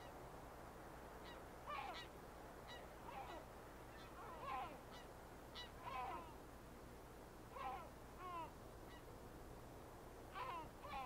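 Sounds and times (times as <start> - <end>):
faint background hiss: 0.0 - 11.0
wild birds calling: 1.2 - 6.4, 7.5 - 9.1, 10.3 - 11.0.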